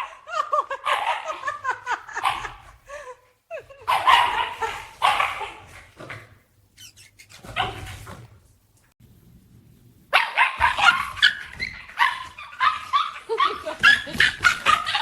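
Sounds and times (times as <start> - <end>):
dog barking angrily: 0.0 - 2.8, 3.8 - 6.4, 7.4 - 8.3, 10.1 - 15.0.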